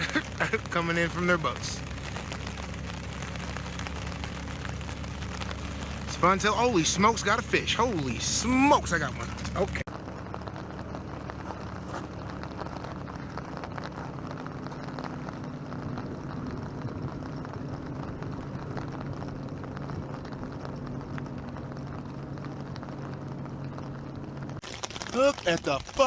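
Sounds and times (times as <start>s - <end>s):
light rain pattering on a tarp: 0.0s - 26.0s.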